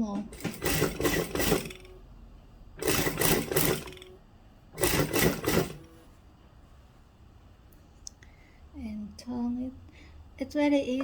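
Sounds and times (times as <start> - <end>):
sewing machine stitching: 0.2 - 2.0, 2.8 - 4.2, 4.8 - 6.0.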